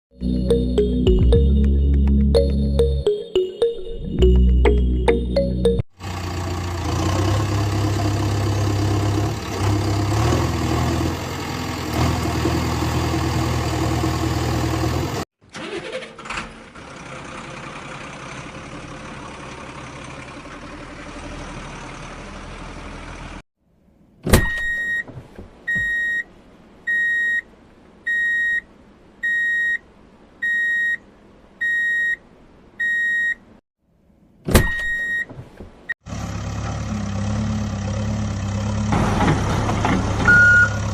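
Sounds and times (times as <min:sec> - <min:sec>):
truck engine running: 0:06.0 - 0:15.2, 0:36.1 - 0:40.9
reversing alarm beeping: 0:29.2 - 0:29.8, 0:40.3 - 0:40.9.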